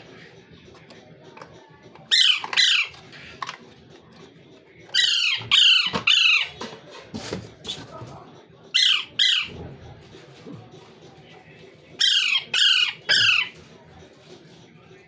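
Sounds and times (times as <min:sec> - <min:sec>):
parrot squawking: 0:02.1 - 0:03.0, 0:04.9 - 0:06.6, 0:08.8 - 0:09.6, 0:12.0 - 0:13.6.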